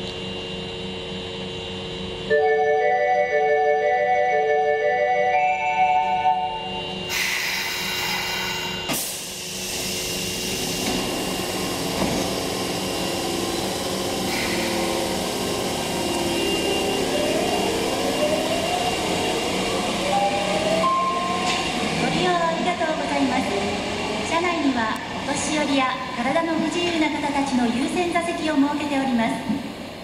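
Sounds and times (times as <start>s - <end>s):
electric train running: 1.1s - 25.7s
train motor whine: 6.3s - 22.1s.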